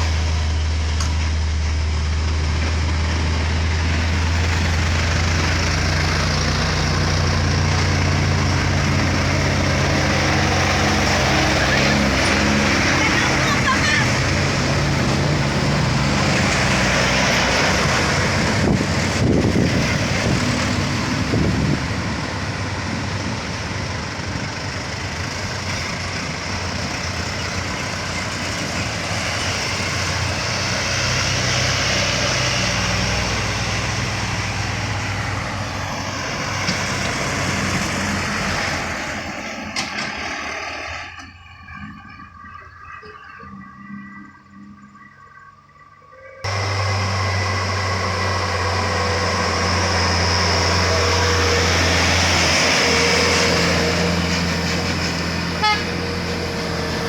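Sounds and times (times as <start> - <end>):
diesel truck engines under load: 0.0 - 57.0.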